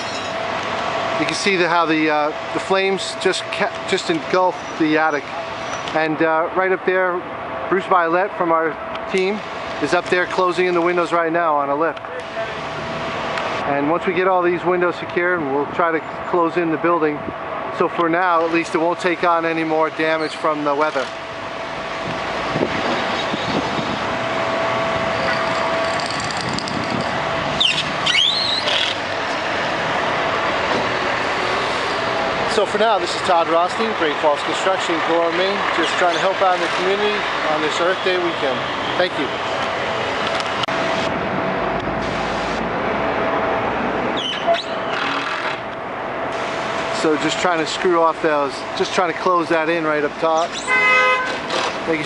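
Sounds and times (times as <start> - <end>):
rising squeal: 0.0 - 0.4, 22.5 - 24.0, 24.8 - 29.1, 44.2 - 45.0
road traffic: 0.0 - 52.0.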